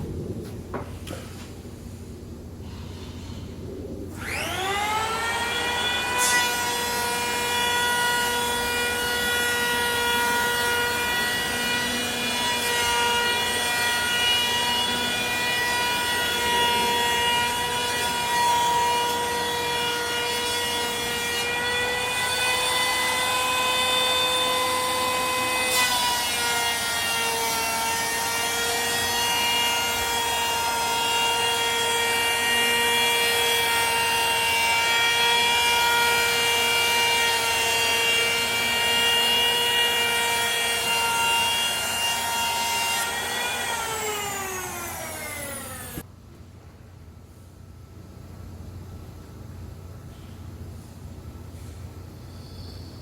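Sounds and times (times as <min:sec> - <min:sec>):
power tool motor whining: 0:37.4 - 0:46.0.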